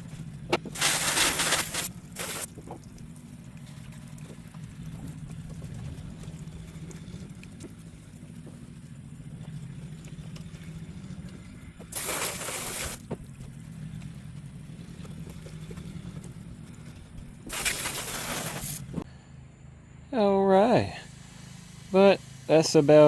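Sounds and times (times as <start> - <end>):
water spraying onto truck bed: 0.0 - 13.5, 16.7 - 19.0
low machine hum: 0.0 - 23.0.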